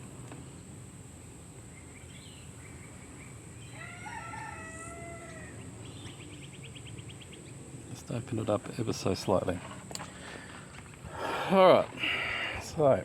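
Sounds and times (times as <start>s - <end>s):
rooster crowing: 3.6s - 5.8s.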